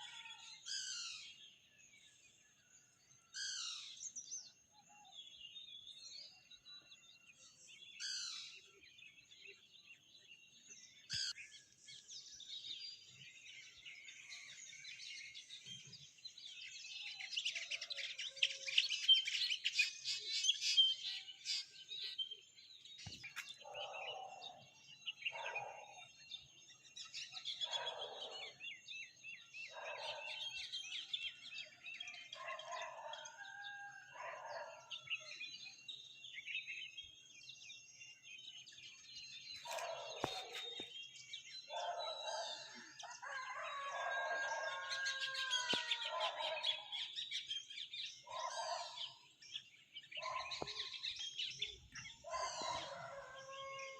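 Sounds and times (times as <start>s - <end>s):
birds calling: 38.8s - 53.9s.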